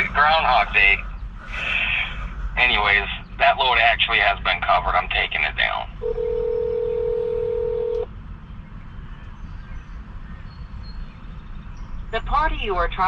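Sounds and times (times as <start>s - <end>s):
low background rumble: 0.0s - 13.0s
telephone call tone: 6.0s - 8.1s.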